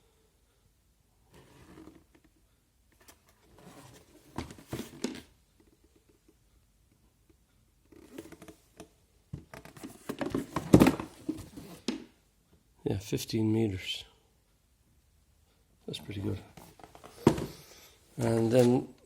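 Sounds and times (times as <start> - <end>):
soft rustles: 16.1 - 19.0.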